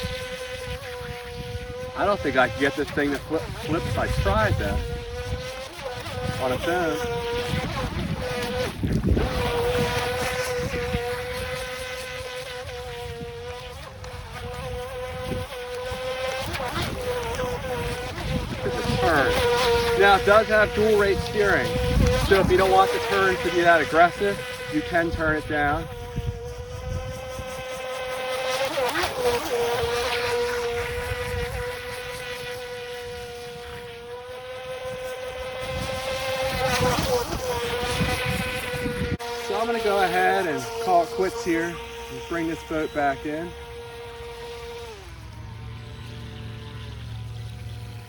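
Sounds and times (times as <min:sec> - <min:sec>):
wind rumble on microphone: 0:00.0 - 0:23.5, 0:24.2 - 0:28.2, 0:29.1 - 0:39.6
electric motor whining: 0:00.0 - 0:48.0.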